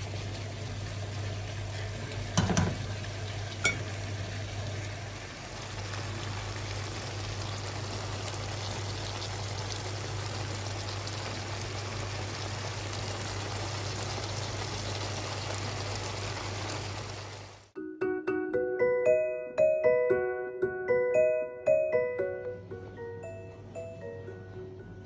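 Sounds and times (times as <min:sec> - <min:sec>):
vegetables sizzling in a frying pan: 0:00.0 - 0:17.8.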